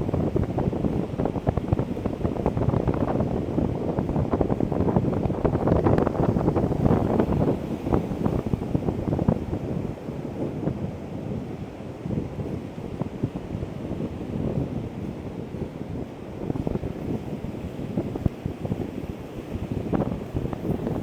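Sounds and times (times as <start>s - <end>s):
wind buffeting microphone: 0.0s - 21.0s
ocean surf breaking: 0.3s - 21.0s.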